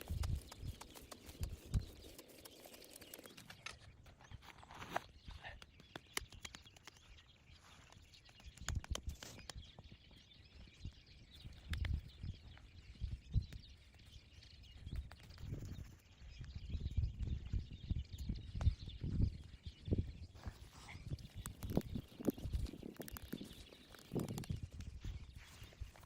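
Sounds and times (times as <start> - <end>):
twigs snapping: 0.0 - 3.8, 5.7 - 7.1, 21.3 - 24.9.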